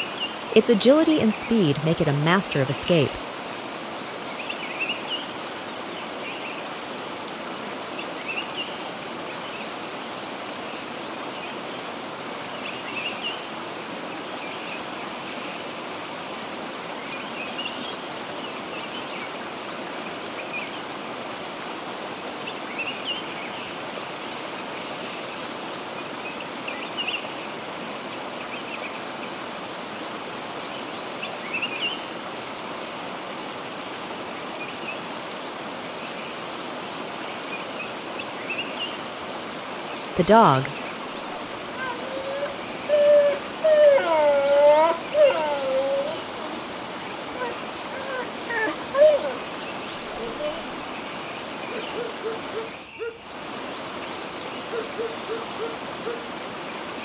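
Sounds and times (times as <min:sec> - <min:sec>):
rushing water: 0:00.0 - 0:57.0
small birds chirping: 0:39.7 - 0:55.6.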